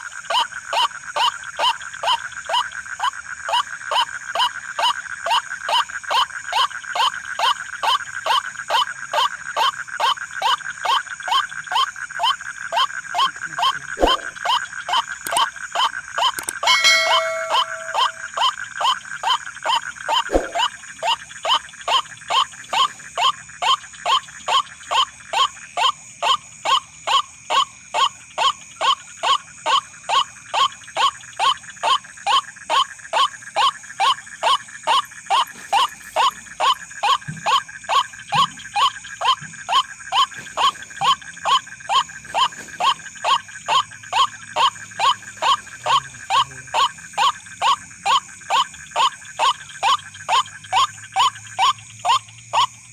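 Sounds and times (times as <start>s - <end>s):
bird harsh calls: 16.5s - 18.4s
high-pitched whine: 16.6s - 18.3s.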